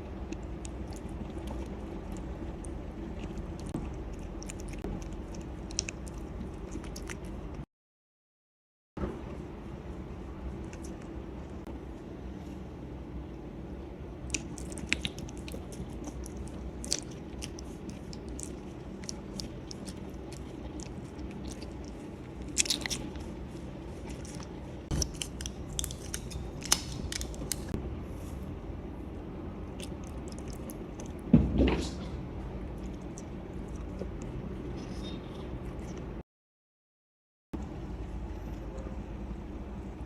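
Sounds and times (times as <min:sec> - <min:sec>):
cats crunching on something hard: 0:00.0 - 0:07.6, 0:14.3 - 0:27.8
steady low hum: 0:00.0 - 0:07.7, 0:09.0 - 0:36.2, 0:37.6 - 0:40.0.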